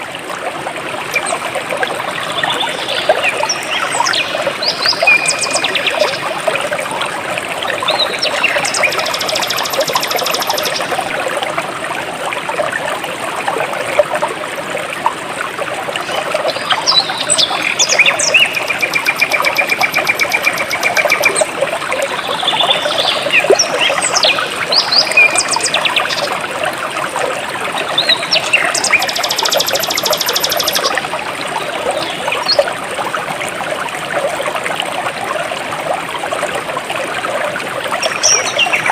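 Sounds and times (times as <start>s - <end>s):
stream flowing and trickling: 0.0s - 38.9s
birds chirping: 7.9s - 10.9s, 16.1s - 21.5s, 28.0s - 30.9s.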